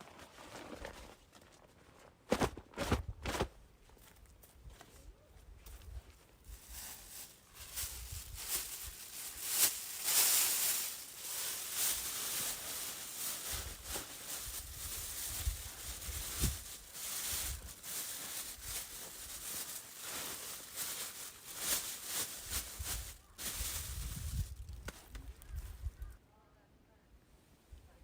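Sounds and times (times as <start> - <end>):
camping gear rustling and knocking: 0.0 - 5.0, 5.6 - 25.7
wind buffeting microphone: 22.6 - 26.1.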